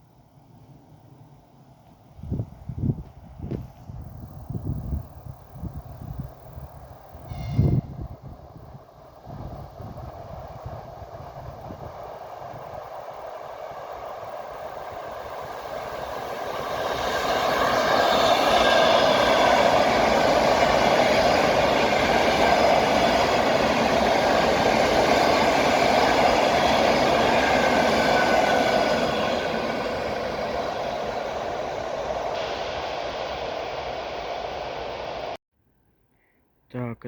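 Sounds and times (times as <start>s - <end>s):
electric train passing: 0.0s - 35.4s.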